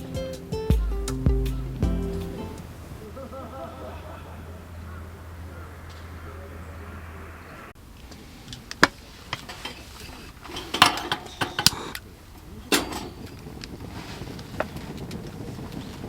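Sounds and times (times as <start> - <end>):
cookware clinking and knocking: 10.4 - 11.9, 12.7 - 13.4.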